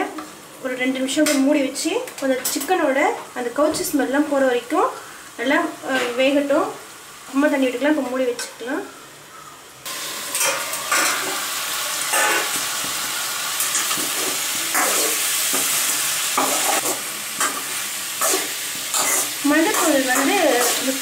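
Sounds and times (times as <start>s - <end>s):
chicken sizzling in a pan: 4.3s - 21.0s
steel ladle scraping pan: 10.3s - 11.4s, 12.0s - 12.6s, 13.6s - 15.8s, 16.4s - 20.9s.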